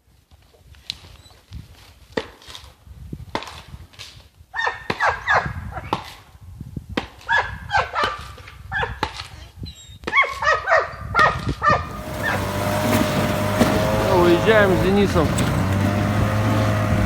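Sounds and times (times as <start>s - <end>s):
dog barking excitedly: 7.3s - 9.0s, 10.2s - 12.6s
vehicle engine hum: 11.8s - 17.0s.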